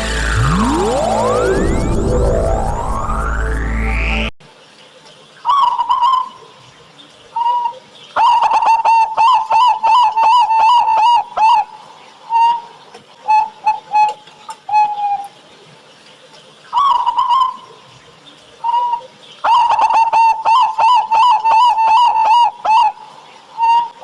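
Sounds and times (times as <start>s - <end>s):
electronic music sweep: 0.0s - 4.4s.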